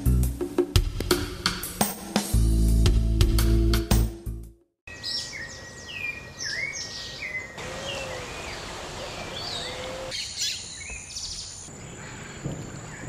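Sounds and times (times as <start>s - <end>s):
birds chirping and whistling: 4.9s - 13.0s.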